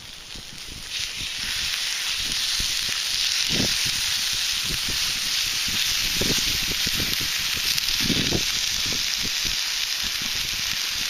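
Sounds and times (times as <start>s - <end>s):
campfire pops and crackles: 0.0s - 11.0s
food sizzling on griddle: 0.0s - 11.0s.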